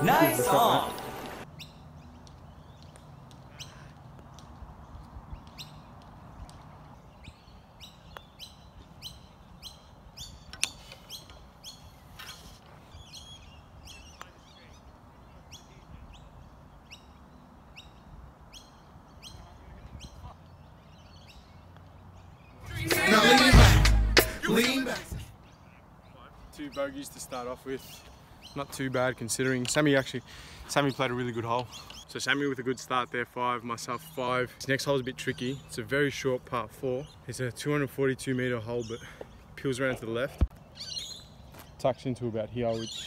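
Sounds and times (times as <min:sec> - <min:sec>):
birds chirping: 0:24.5 - 0:43.0.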